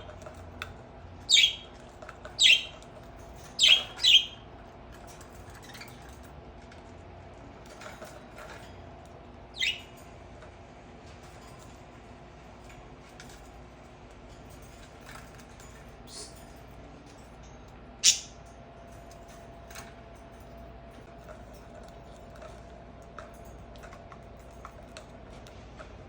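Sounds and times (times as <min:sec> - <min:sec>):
budgerigar chirps: 0:01.3 - 0:01.6, 0:02.4 - 0:02.7, 0:09.6 - 0:09.8, 0:18.0 - 0:18.4.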